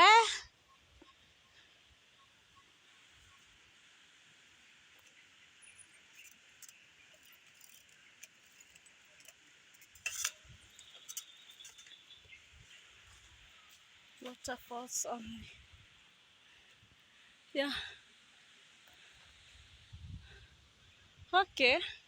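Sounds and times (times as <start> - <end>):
faint steady hiss: 0.0 - 22.0
light clicks and chinks: 4.9 - 12.4.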